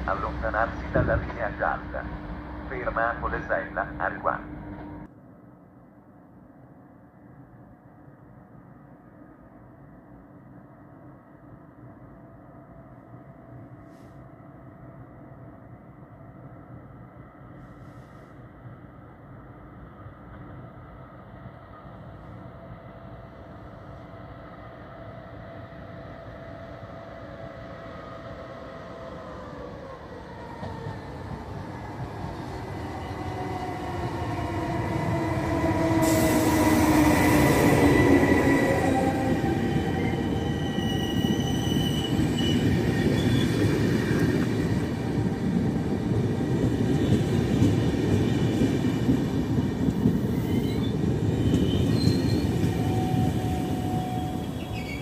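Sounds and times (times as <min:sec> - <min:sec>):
electric train whine: 0:00.0 - 0:55.0
high brake squeals: 0:39.9 - 0:43.6, 0:50.3 - 0:55.0.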